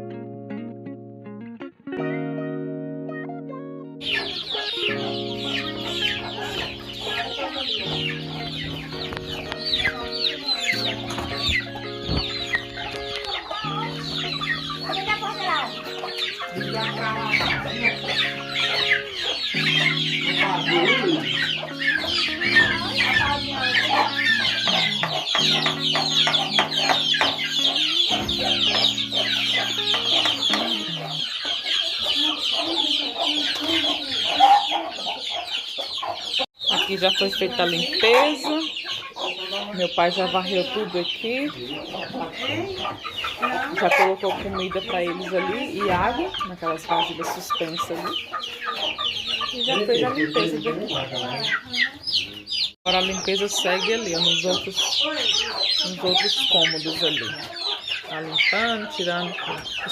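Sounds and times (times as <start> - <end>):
music of held low chords: 0.0 - 31.3
chickens clucking: 3.9 - 59.9
chicks peeping: 3.9 - 59.9.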